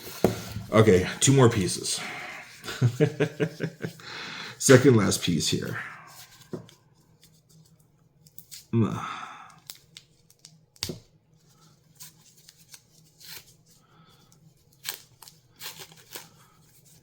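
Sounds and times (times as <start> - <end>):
packing material crinkling: 14.6 - 17.0.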